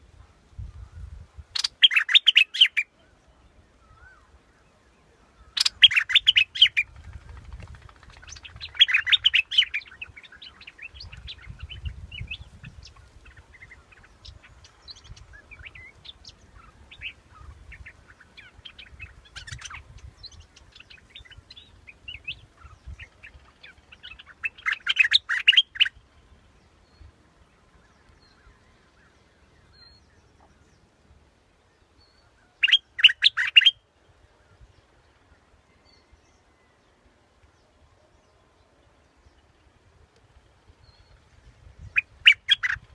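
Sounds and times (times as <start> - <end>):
faint bird chirps: 0.0 - 42.9
bulbul song: 1.6 - 2.9, 5.6 - 6.9, 32.6 - 33.8.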